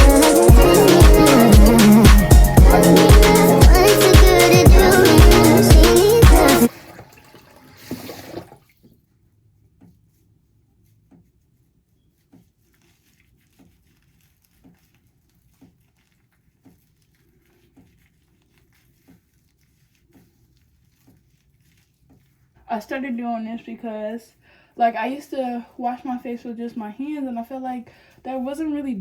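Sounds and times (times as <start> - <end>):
wet towel on face: 0.0 - 8.6, 10.9 - 22.6
water splash: 6.2 - 8.6.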